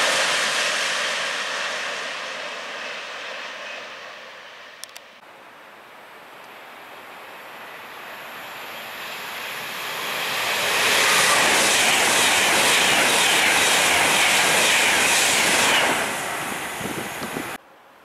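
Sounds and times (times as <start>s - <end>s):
electric train passing at speed: 0.0s - 5.2s, 6.4s - 17.6s.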